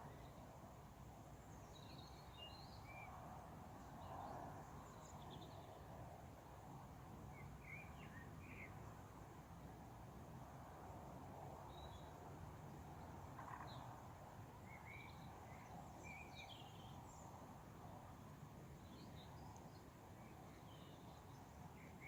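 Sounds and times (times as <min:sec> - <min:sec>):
small birds chirping: 0:14.7 - 0:17.3, 0:18.8 - 0:22.0.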